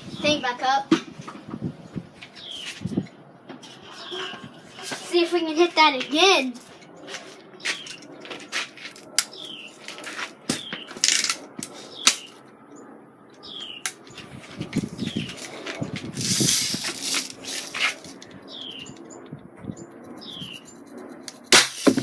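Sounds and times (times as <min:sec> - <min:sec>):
bird chirping: 0:02.3 - 0:02.9, 0:07.0 - 0:08.1, 0:09.3 - 0:09.8, 0:10.6 - 0:11.0, 0:11.8 - 0:14.2, 0:14.9 - 0:16.0, 0:17.3 - 0:21.5.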